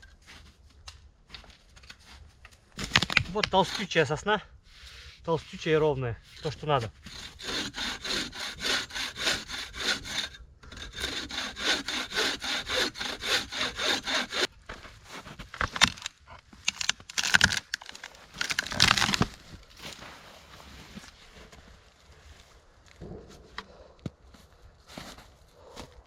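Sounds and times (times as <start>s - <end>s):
wood cracking: 2.5s - 3.8s, 7.2s - 19.6s
bow saw cutting log: 3.4s - 4.0s, 6.4s - 14.5s, 16.7s - 19.3s
rustling: 14.5s - 25.8s.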